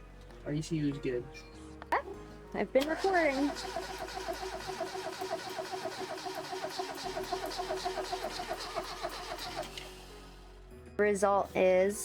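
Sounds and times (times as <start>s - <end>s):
car engine cranking: 2.8s - 10.4s.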